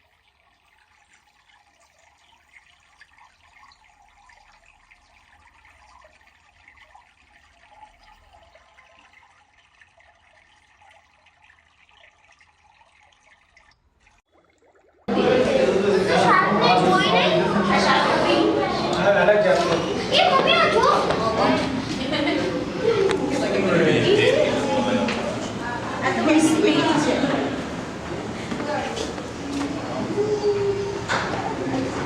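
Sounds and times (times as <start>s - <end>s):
small water drips: 0.0s - 15.1s
trickle of running water: 0.0s - 15.2s.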